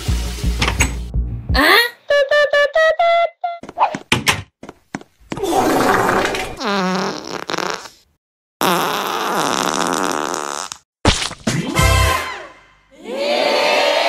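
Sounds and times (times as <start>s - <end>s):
cartoon fart sounds: 5.3s - 11.6s.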